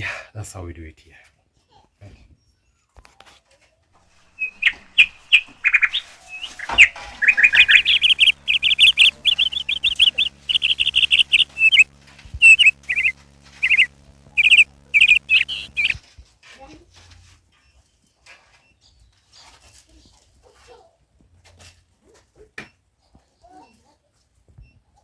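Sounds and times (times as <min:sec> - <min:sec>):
faint low hum: 0:04.0 - 0:16.0
bird chirping loudly: 0:04.1 - 0:16.0.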